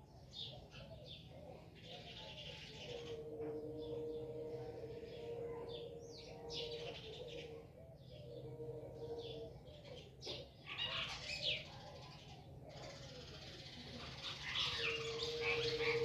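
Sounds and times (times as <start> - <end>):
birds chirping: 10.8 - 16.0.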